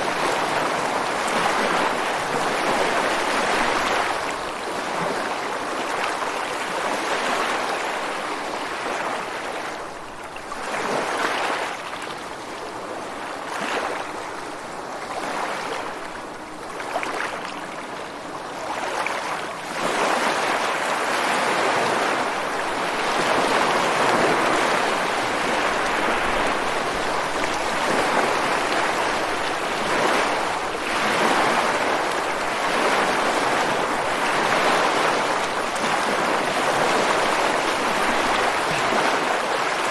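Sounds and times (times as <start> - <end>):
waves breaking over rocks: 21.6 - 39.9.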